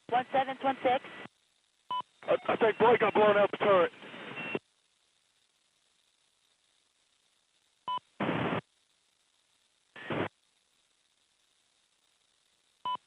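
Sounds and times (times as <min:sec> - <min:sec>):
radio static bursts: 0:01.9 - 0:04.6, 0:08.2 - 0:08.6, 0:10.0 - 0:10.3.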